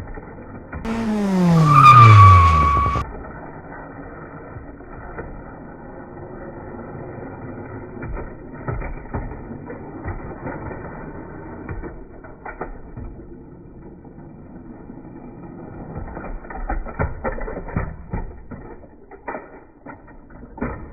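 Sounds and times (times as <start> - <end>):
car engine dropping in pitch: 0.9 - 3.0
high steady squeal: 0.9 - 3.0.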